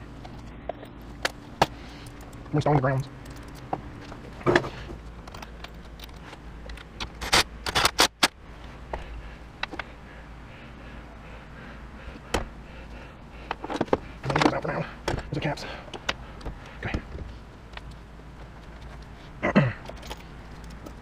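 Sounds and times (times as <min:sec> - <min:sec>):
metal hardware clicking and clanking: 0:00.2 - 0:08.3, 0:19.8 - 0:21.0.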